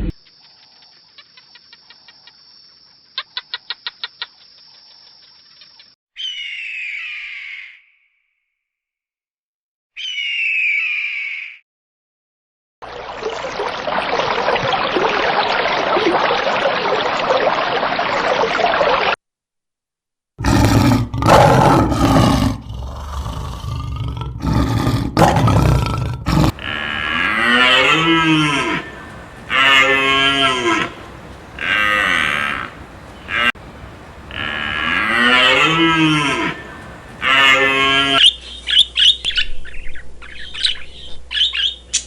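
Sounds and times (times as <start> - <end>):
cattle bellowing: 24.6 - 38.2
cows mooing: 25.2 - 38.2
harsh hissing: 26.4 - 38.2.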